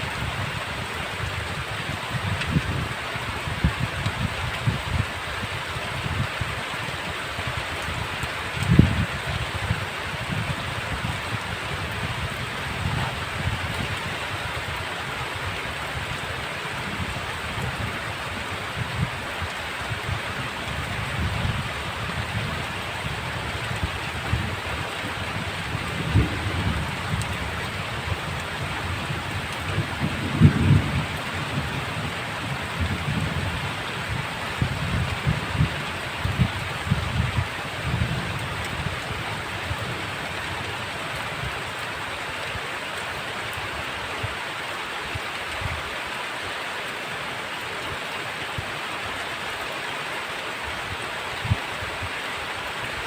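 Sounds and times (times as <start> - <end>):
heavy rain hissing: 0.0 - 53.0
thunder rumbling: 20.1 - 40.3.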